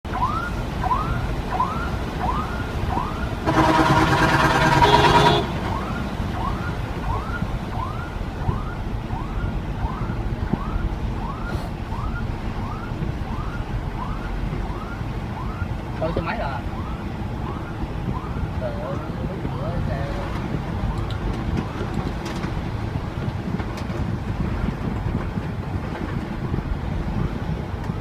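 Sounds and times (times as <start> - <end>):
rain: 0.1 - 28.0
traffic rumble: 0.1 - 28.0
vehicle horn: 3.4 - 5.7.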